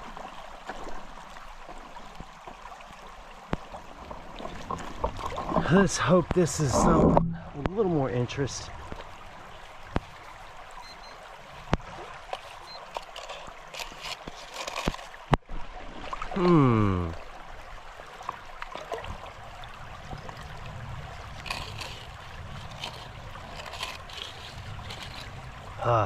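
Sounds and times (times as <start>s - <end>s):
creek water trickling: 0.0s - 26.0s
digging clicks and knocks: 11.7s - 15.4s.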